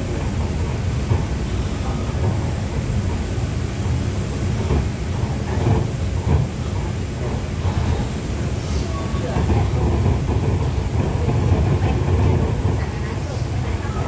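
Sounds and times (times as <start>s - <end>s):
monorail train rumbling: 0.0s - 14.0s.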